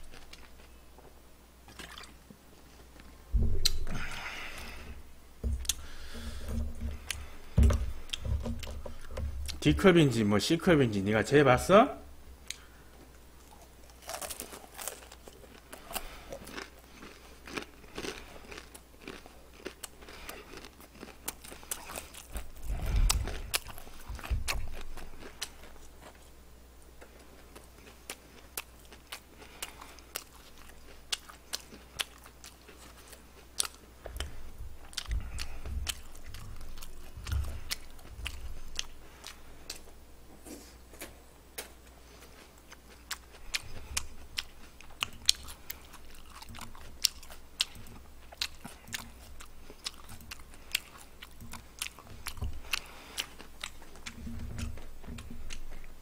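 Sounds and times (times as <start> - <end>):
person chewing crunchy food: 0.0 - 0.8, 3.4 - 9.7, 13.4 - 26.4, 27.0 - 40.9, 41.8 - 56.0
dull low thumps: 3.3 - 4.0.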